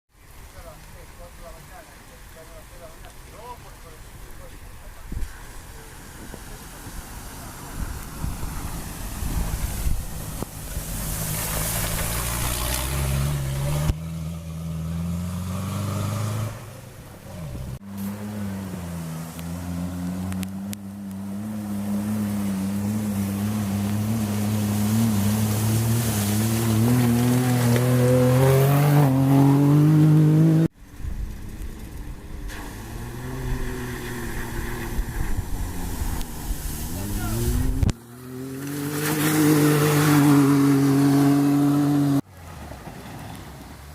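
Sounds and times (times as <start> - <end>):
racing engine revving: 7.3 - 30.7, 32.7 - 42.2
rough engine rumble: 30.7 - 38.0.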